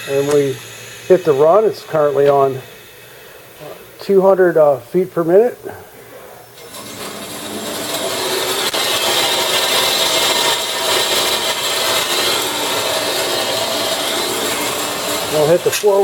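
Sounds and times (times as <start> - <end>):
band saw running hiss: 0.0 - 5.6, 6.6 - 16.0.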